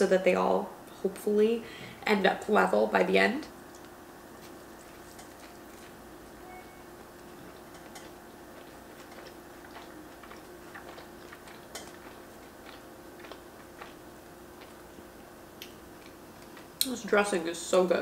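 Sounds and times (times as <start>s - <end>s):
wet chewing clicks and smacks: 3.7s - 6.0s, 7.2s - 16.9s.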